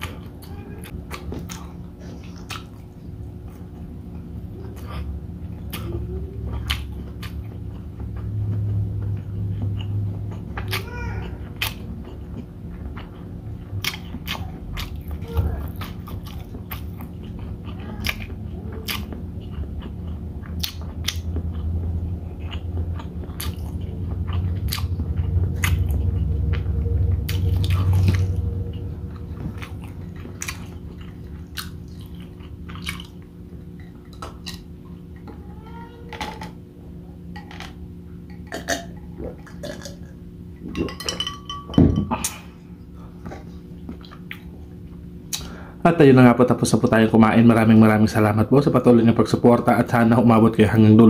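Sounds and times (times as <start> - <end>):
steady low hum: 0.0 - 51.0
low rumble: 18.2 - 33.7
person gulping a drink: 38.3 - 40.2.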